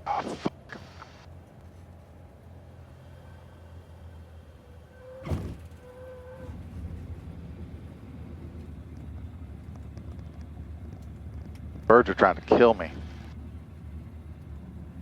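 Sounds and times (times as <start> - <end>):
aircraft engine idling: 0.0 - 15.0
wheels rolling rumble: 0.5 - 15.0
stall warning horn whistling: 4.6 - 7.6
wheels thumping on runway: 5.0 - 15.0.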